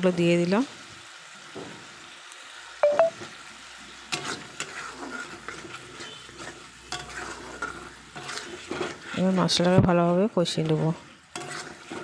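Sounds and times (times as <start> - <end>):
paste sizzling in a pan: 0.0 - 12.0
metal spatula scraping: 4.0 - 12.0.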